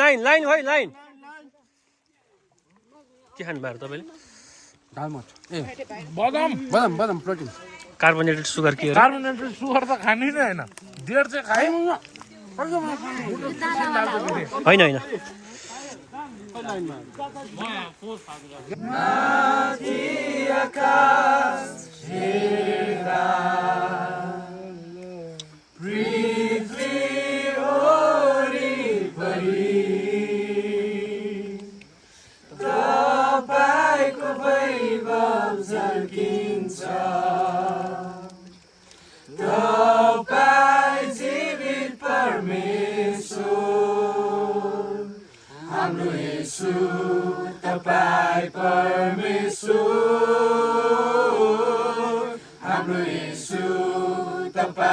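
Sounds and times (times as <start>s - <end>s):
group singing without instruments: 18.6s - 54.9s.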